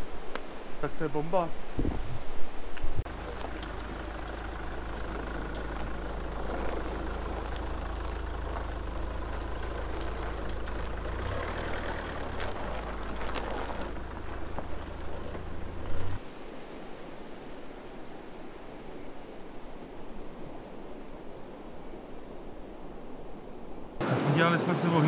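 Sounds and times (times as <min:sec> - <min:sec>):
vehicle engine running: 0:03.1 - 0:16.2.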